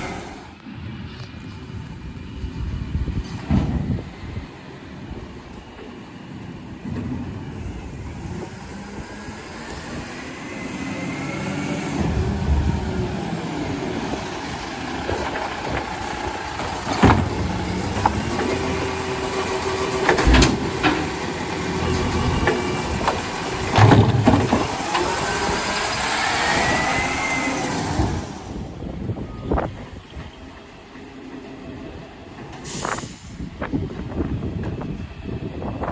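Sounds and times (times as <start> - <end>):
garbage truck engine running: 0.0 - 35.9
hydraulics whining: 0.0 - 35.9
loud bin bangs: 16.6 - 25.2.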